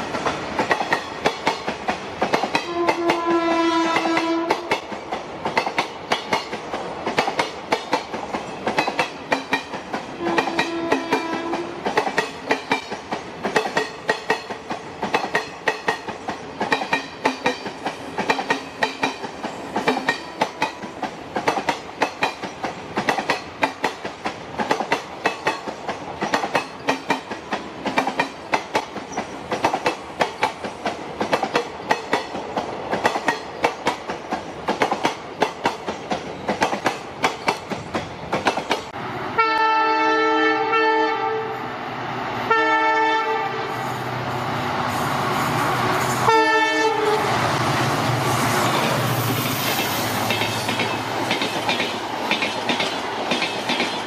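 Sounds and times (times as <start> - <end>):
train wheels clattering: 0.0 - 3.3, 3.9 - 39.0, 48.4 - 54.0
train horn: 2.6 - 4.7, 10.2 - 11.9, 39.3 - 41.7, 42.5 - 44.0, 46.2 - 47.4.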